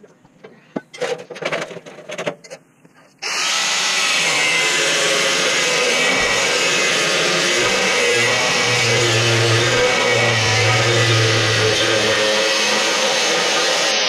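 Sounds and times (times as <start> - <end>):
power tool cutting steel plate: 3.2 - 14.0.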